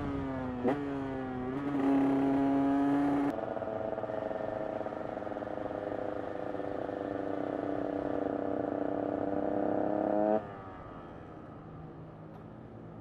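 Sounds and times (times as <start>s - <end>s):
two-stroke motorcycle engine: 0.0s - 10.4s.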